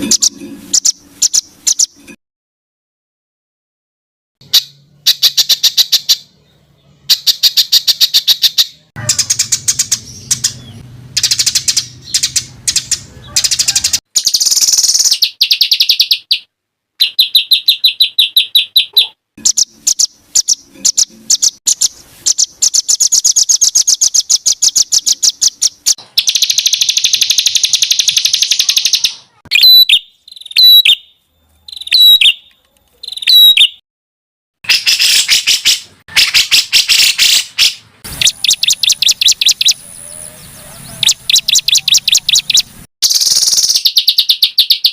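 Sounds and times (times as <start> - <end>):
songbird rattling trills: 7.1 - 31.0, 38.1 - 44.9
whistled bird phrases: 22.3 - 33.8, 38.1 - 44.9.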